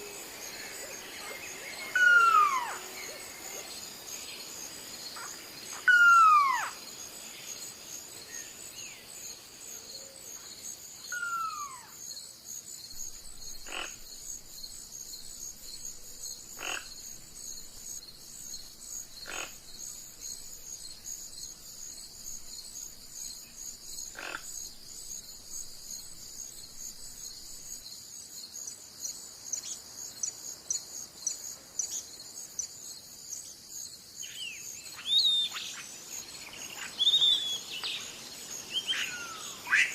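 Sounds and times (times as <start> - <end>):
insect chorus: 0.0 - 39.9
falling whistled bird call: 34.4 - 35.8, 36.9 - 37.8.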